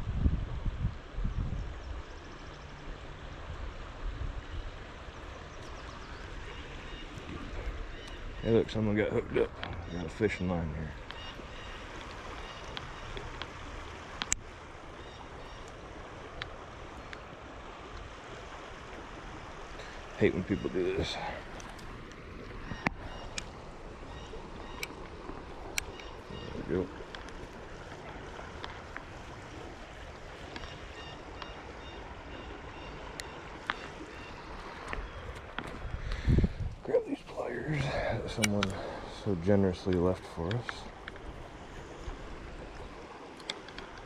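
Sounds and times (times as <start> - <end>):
creek water flowing: 0.0 - 44.0
small sharp clicks: 14.2 - 14.4, 43.4 - 44.0.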